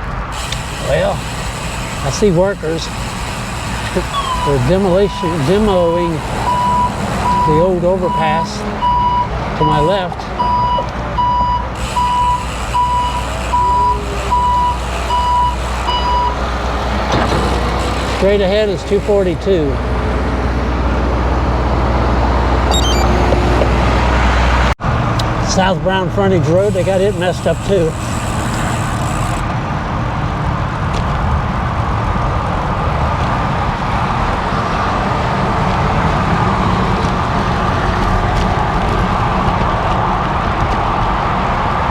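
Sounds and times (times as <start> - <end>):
motor traffic passing: 0.0 - 41.9
backup alarm beeping: 4.0 - 16.4, 22.7 - 23.3.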